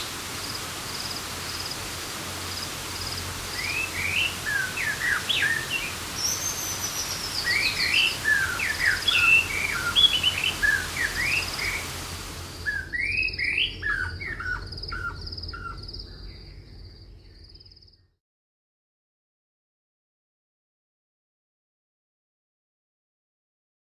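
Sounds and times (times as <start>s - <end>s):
steady hiss: 0.0s - 12.7s
birds chirping and trilling: 0.0s - 17.6s.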